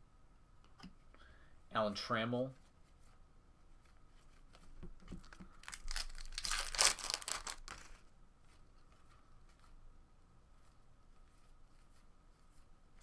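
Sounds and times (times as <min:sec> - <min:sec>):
wrapper tearing and crinkling: 0:05.6 - 0:08.0.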